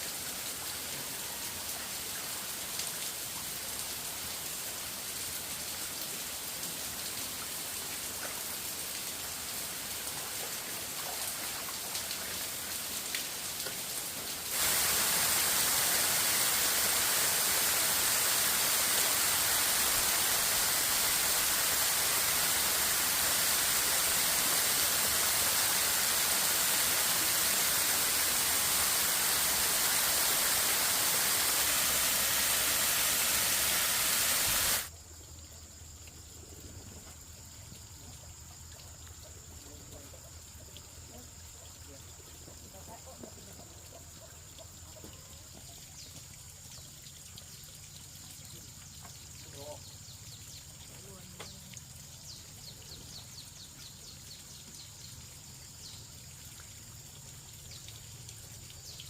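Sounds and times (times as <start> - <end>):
rain-like hissing: 0.0 - 59.0.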